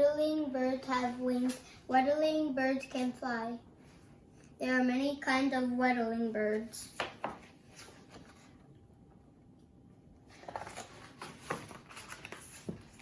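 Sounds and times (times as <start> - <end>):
book pages rustling: 6.9 - 8.7, 10.3 - 13.0.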